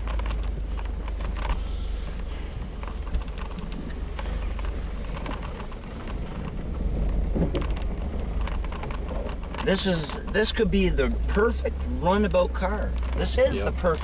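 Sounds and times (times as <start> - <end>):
car driving over rough ground: 0.0 - 14.0
clicks knocks and rattles: 2.8 - 9.7.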